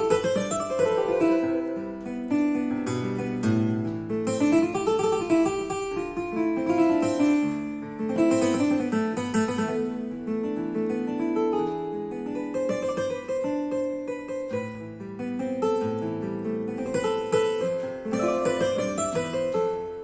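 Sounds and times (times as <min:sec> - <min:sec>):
digital keyboard plucked melody: 0:18.2 - 0:19.4.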